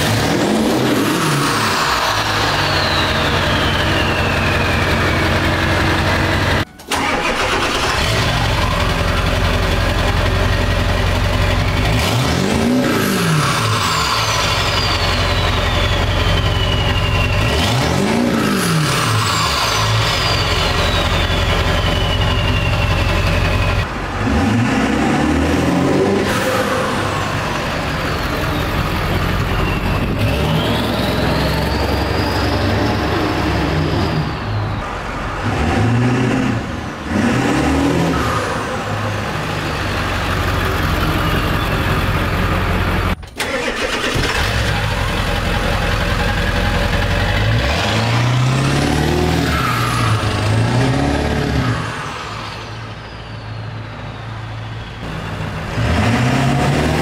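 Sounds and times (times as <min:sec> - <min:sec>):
diesel truck accelerating past: 0:00.0 - 0:57.0
turbo whistle: 0:01.5 - 0:06.9, 0:13.2 - 0:23.9, 0:27.9 - 0:35.0.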